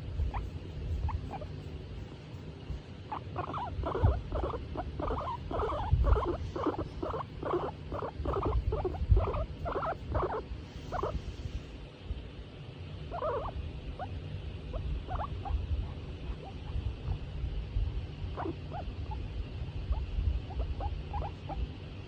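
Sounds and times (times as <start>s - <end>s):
guinea pig squeaking: 0.0s - 1.6s, 3.1s - 11.3s, 13.1s - 17.0s, 18.3s - 21.6s.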